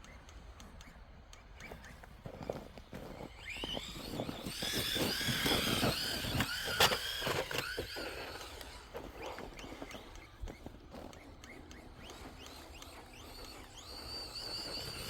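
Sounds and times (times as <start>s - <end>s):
electric motor whining: 3.3s - 15.0s.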